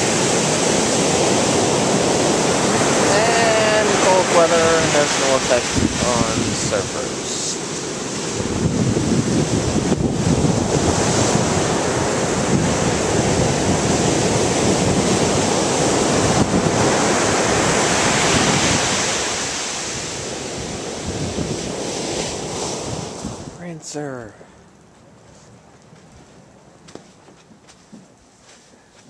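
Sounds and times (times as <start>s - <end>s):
wind on microphone: 0.0s - 23.6s
ocean surf breaking: 0.0s - 24.7s.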